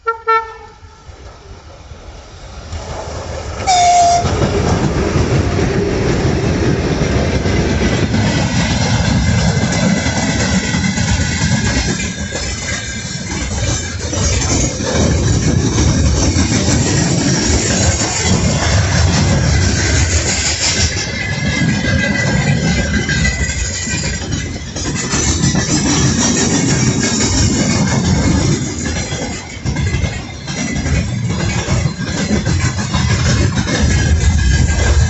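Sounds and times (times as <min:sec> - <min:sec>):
train horn blasts: 0:00.0 - 0:01.1, 0:03.7 - 0:04.4
train rumble passing: 0:00.0 - 0:35.0
wheels clattering on rails: 0:01.1 - 0:35.0.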